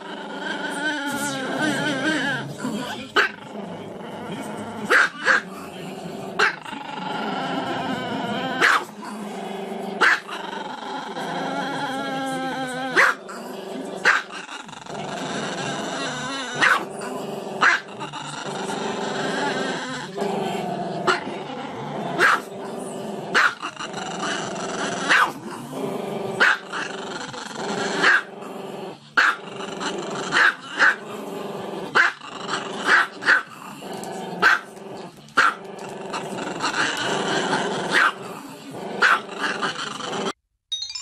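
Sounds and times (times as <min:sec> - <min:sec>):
dog barking: 0:04.9 - 0:05.4, 0:08.6 - 0:08.9, 0:10.0 - 0:10.3, 0:13.0 - 0:13.2, 0:14.0 - 0:14.3, 0:16.6 - 0:16.9, 0:17.6 - 0:17.9, 0:22.2 - 0:22.5, 0:23.3 - 0:23.6, 0:25.1 - 0:25.4, 0:26.4 - 0:26.6, 0:28.0 - 0:28.3, 0:29.2 - 0:29.4, 0:32.0 - 0:32.2, 0:32.9 - 0:33.5, 0:34.4 - 0:34.7, 0:37.9 - 0:38.2, 0:39.0 - 0:39.3.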